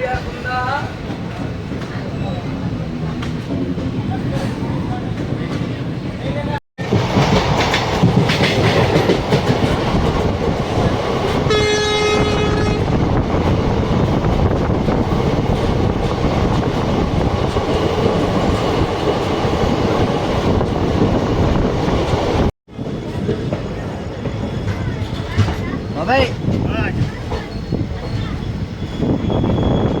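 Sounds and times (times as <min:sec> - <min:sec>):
train wheels rumbling on rails: 0:00.0 - 0:30.0
train horn: 0:11.4 - 0:12.9.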